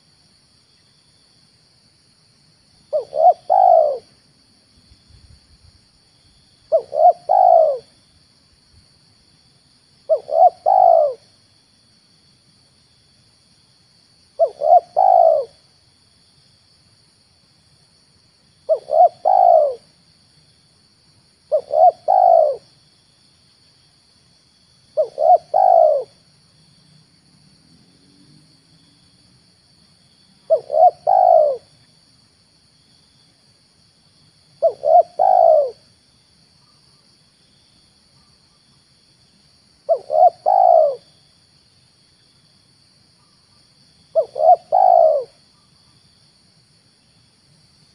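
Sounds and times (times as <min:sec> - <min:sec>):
dove cooing: 0:02.9 - 0:04.1, 0:06.7 - 0:08.0, 0:10.1 - 0:11.3, 0:14.4 - 0:15.6, 0:18.7 - 0:19.9, 0:21.5 - 0:22.7, 0:25.0 - 0:26.2, 0:30.4 - 0:31.7, 0:34.6 - 0:35.8, 0:39.9 - 0:41.1, 0:44.1 - 0:45.4.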